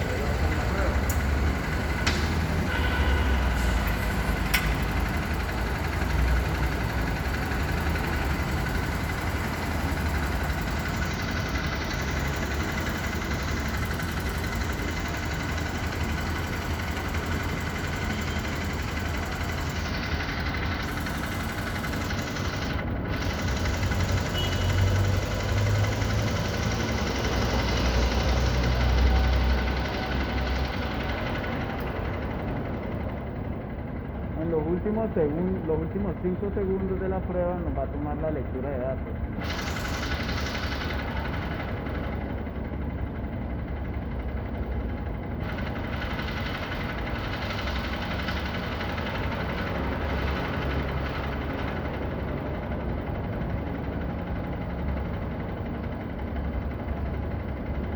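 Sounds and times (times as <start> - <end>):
motorcycle engine idling: 0.0 - 57.9.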